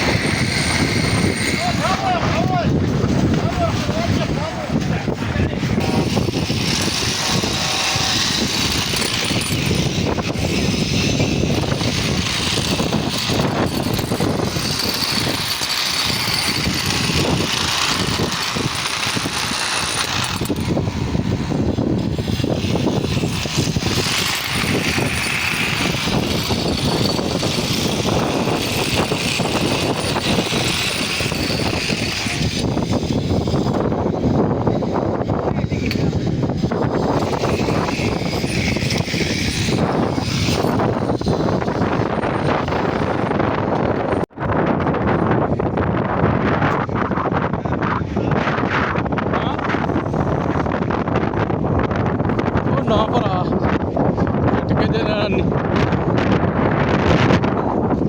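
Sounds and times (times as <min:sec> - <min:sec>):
construction machinery clattering: 0:00.0 - 0:34.8, 0:35.4 - 0:44.3.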